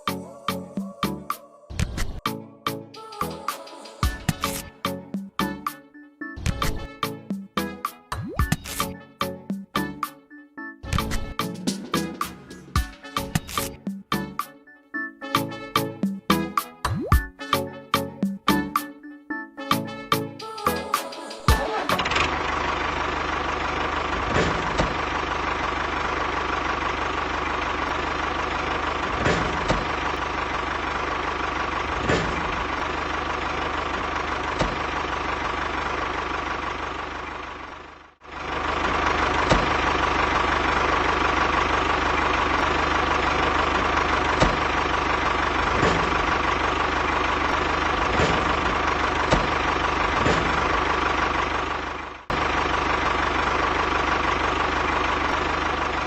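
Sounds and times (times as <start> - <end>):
small tractor engine running: 21.5 - 56.0.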